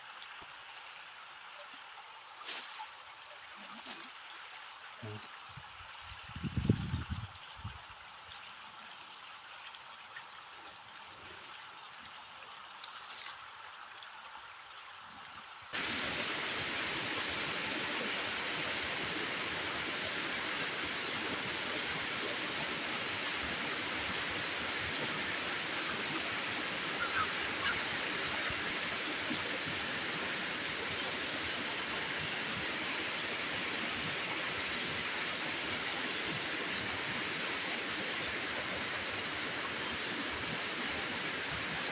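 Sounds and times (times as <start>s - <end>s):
rushing water: 15.8s - 41.9s.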